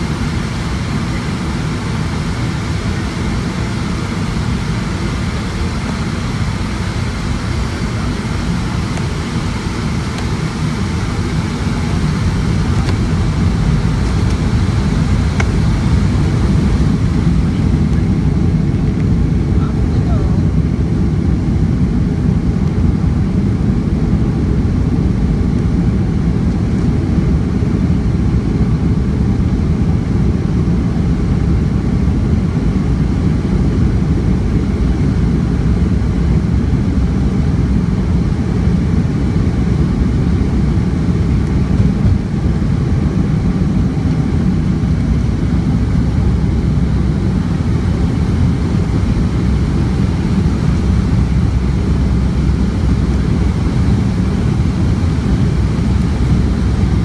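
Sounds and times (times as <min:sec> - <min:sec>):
jet engines roaring in cabin: 0:00.0 - 0:57.0.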